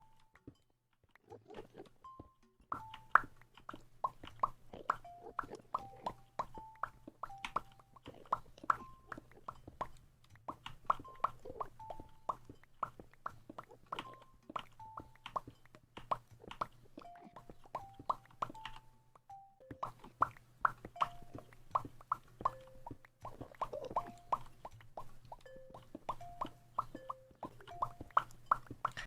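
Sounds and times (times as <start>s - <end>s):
mouth popping sounds: 0.0s - 29.0s.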